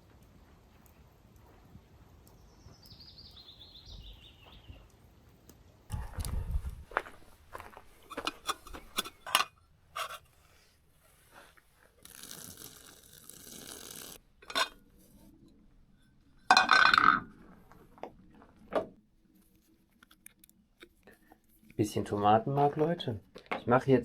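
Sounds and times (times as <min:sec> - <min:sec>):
cookware clinks and scrapes: 0:08.0 - 0:10.2, 0:14.4 - 0:14.8.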